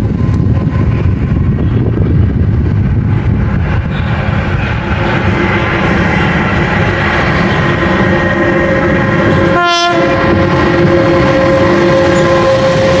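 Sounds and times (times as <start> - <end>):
train rumble: 0.0 - 13.0
train horn: 4.0 - 13.0.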